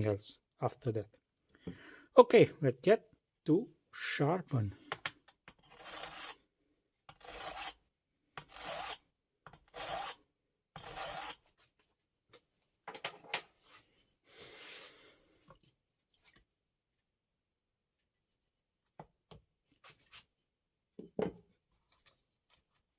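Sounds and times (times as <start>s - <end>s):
knife blade scraping abrasive surface: 5.5s - 6.4s, 7.1s - 7.8s, 8.4s - 10.2s, 10.8s - 11.5s.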